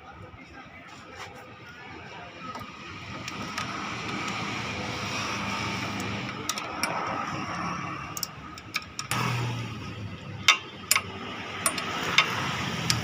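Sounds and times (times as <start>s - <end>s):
tools and metal parts clicking: 5.8s - 9.2s, 10.4s - 13.0s.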